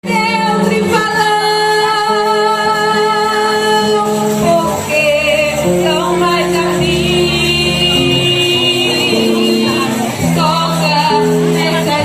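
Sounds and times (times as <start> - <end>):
guitar: 0.0 - 12.0
woman singing: 0.0 - 12.0
worship band playing: 0.0 - 12.0.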